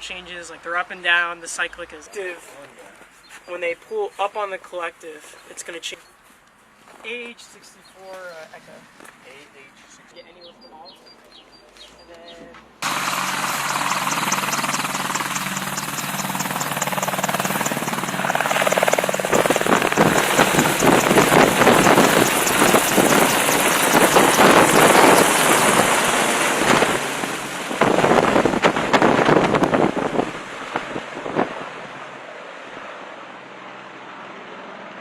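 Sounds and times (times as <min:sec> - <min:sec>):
helicopter turbines and rotors: 0:12.8 - 0:35.0
rushing wind from downwash: 0:17.0 - 0:35.0.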